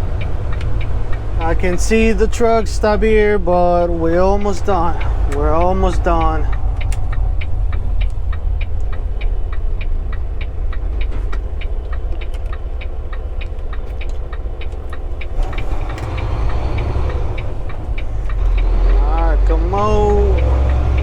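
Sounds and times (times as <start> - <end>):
diesel truck engine rumble: 0.0 - 21.0
light regular ticking: 0.0 - 21.0.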